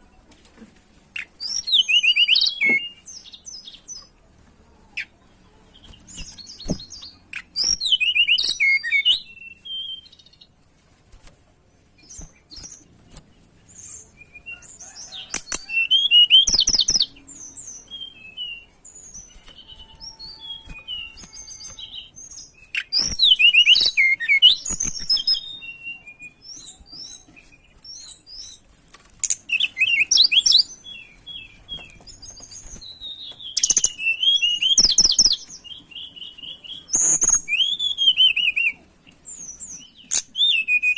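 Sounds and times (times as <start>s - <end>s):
rapid high bird twittering: 29.2s - 40.9s.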